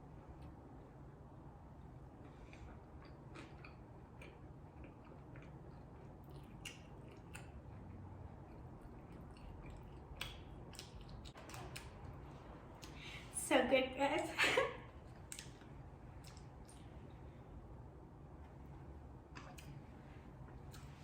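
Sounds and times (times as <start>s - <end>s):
person chewing food: 2.2s - 13.0s, 15.0s - 17.2s.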